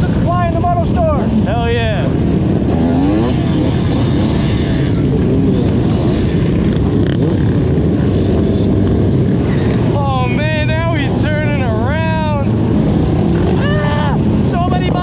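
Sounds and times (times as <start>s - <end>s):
motorcycle engines revving: 0.0s - 15.0s
wind rush on microphone: 0.0s - 15.0s.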